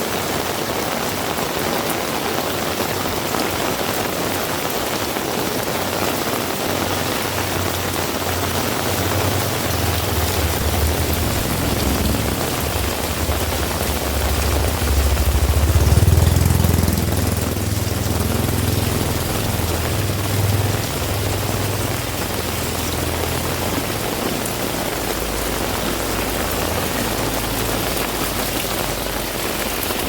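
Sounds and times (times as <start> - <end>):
heavy rain: 0.0 - 30.0
vehicle engine rumble: 6.2 - 30.0.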